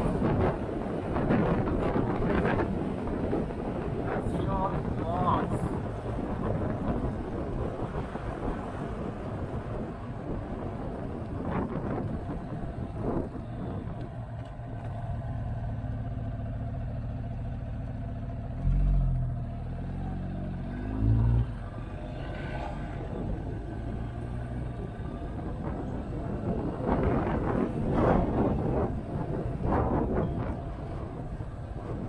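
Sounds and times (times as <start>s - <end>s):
wind buffeting microphone: 0.0s - 14.8s, 21.4s - 32.0s
motorcycle engine running: 13.4s - 18.6s.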